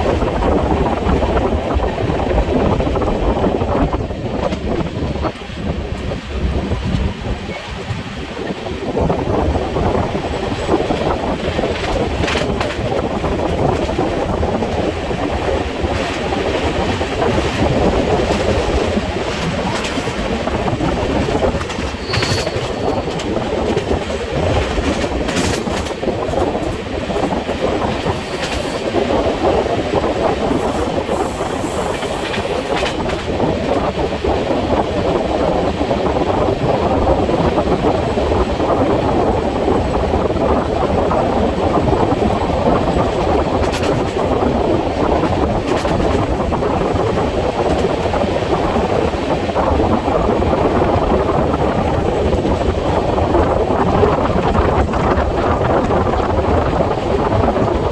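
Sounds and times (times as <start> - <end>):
train wheels rumbling on rails: 0.0 - 57.9
high-pitched wheel squeals: 21.9 - 23.2.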